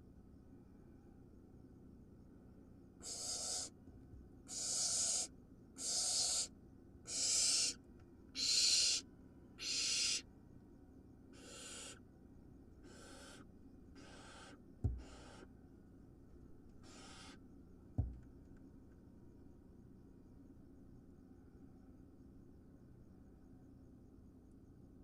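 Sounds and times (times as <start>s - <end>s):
owl nestling hissing calls: 3.0s - 3.8s, 4.5s - 7.8s, 8.4s - 10.3s, 11.3s - 12.0s, 12.8s - 15.5s, 16.8s - 17.4s
low thump: 14.8s - 15.0s, 18.0s - 18.2s.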